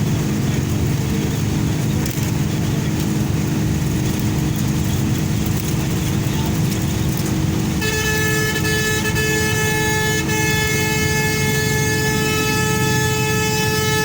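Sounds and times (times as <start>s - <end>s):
highway engine and tyre rumble: 0.0s - 14.0s
vehicle horn steady note: 7.7s - 14.0s.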